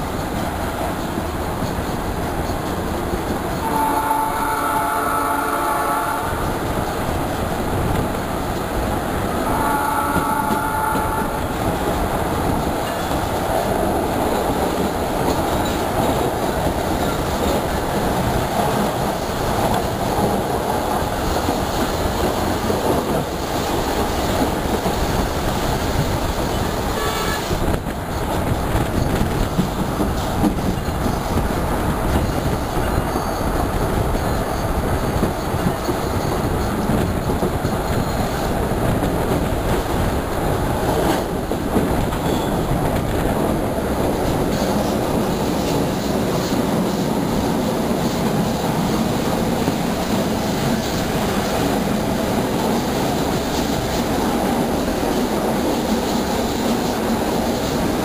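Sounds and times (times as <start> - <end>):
train wheels rumbling on rails: 0.0 - 58.0
train horn: 3.6 - 6.5, 9.4 - 11.6, 26.6 - 27.7.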